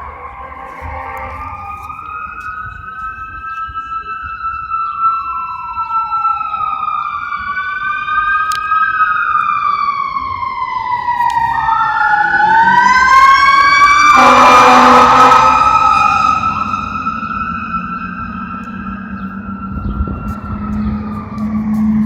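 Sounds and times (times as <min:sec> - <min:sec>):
fire truck sirens wailing: 0:00.0 - 0:22.0
loud horn blast: 0:12.2 - 0:17.1.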